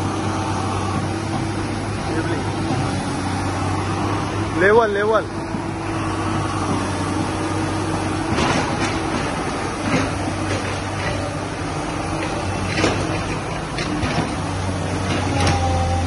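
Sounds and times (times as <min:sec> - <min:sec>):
excavator engine hum: 0:00.0 - 0:16.0
excavator bucket clanks and knocks: 0:08.1 - 0:16.0.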